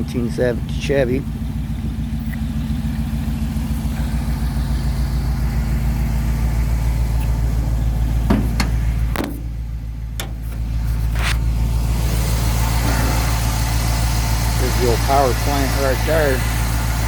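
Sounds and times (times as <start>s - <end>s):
truck engine idling: 0.0s - 17.0s
sharp knocks or clicks: 8.3s - 9.5s.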